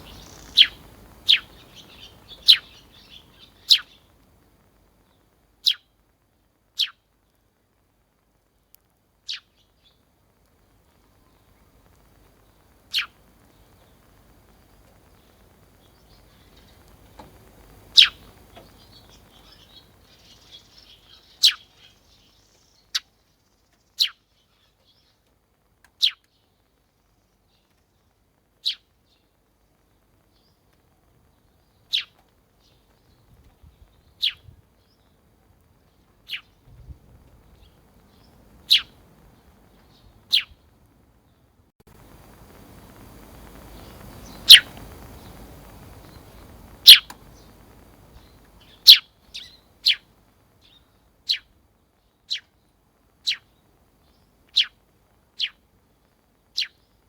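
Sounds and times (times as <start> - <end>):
sparrow chirping: 0.0 - 4.1, 5.6 - 5.9, 6.8 - 7.0, 9.3 - 10.0, 12.9 - 14.1, 15.0 - 16.9, 17.9 - 25.2, 26.0 - 26.4, 28.6 - 29.2, 31.6 - 35.1, 35.9 - 36.7, 37.4 - 40.7, 43.7 - 54.8, 55.4 - 55.6, 56.5 - 57.0.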